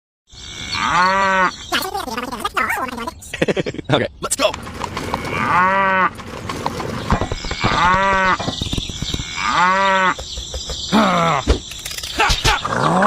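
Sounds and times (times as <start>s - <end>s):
cow mooing: 0.4s - 1.6s, 5.2s - 6.1s, 9.2s - 10.2s.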